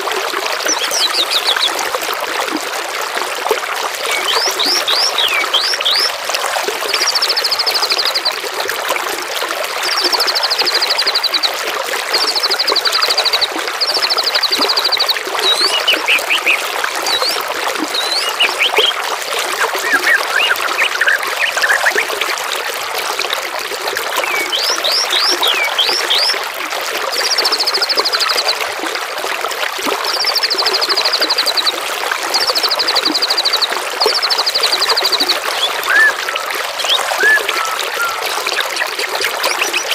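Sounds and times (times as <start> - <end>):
trickle of running water: 0.0 - 39.9
songbirds calling: 0.6 - 1.9, 4.0 - 6.2, 12.1 - 22.2, 24.2 - 26.4, 32.4 - 39.9
quick sweeping whistles: 35.7 - 36.2, 36.8 - 38.3.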